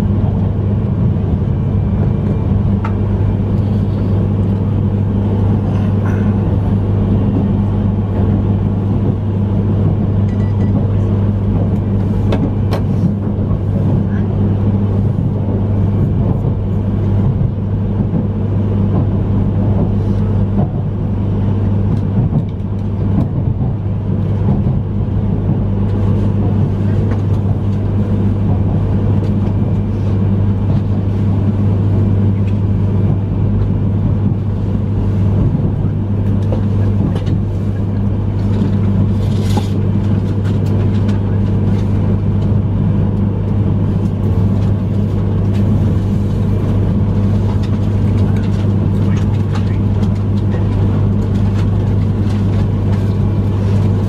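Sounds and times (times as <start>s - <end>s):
wheel and track noise: 0.0s - 31.7s, 32.3s - 54.0s
train cabin low hum: 0.0s - 54.0s.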